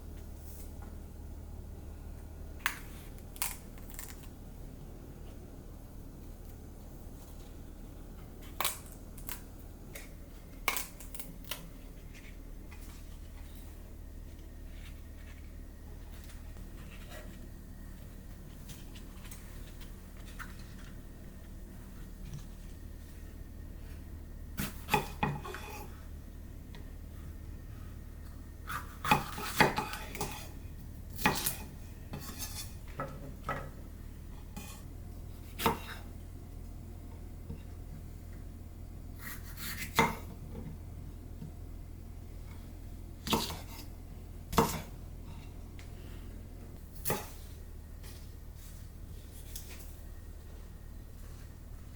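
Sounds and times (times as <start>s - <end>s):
faint low hum: 0.0s - 51.9s.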